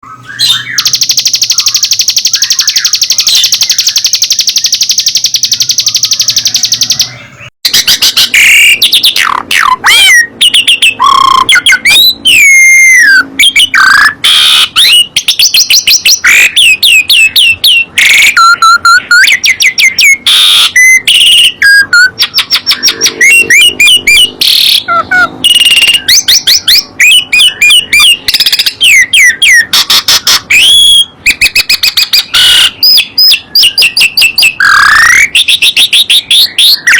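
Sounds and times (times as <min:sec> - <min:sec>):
songbird whistles and chirps: 0:00.0 - 0:36.9
songbird buzzing trill: 0:00.5 - 0:07.1.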